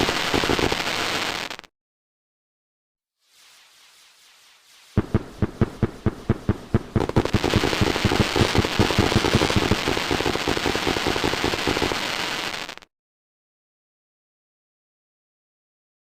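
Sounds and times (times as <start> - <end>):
fireworks crackling and banging: 0.0 - 1.7, 3.3 - 12.9.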